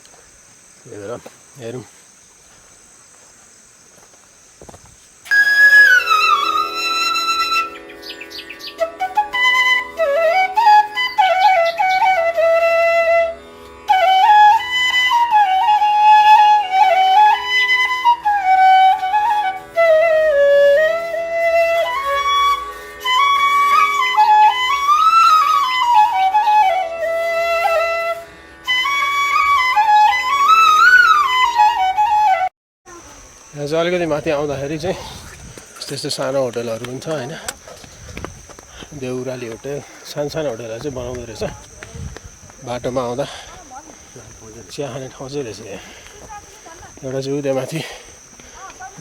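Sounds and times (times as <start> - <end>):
solo flute melody: 5.3 - 32.5.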